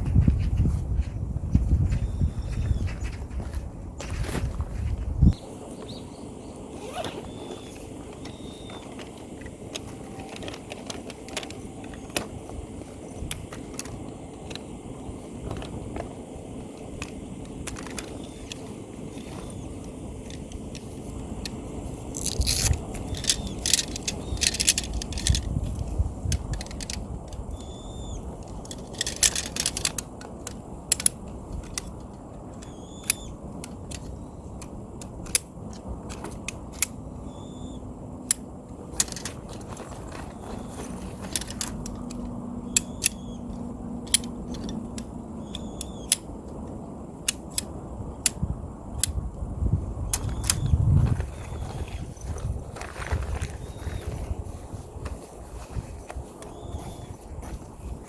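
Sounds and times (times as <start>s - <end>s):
low background noise: 2.5s - 58.0s
objects scraping and clinking: 22.1s - 25.6s.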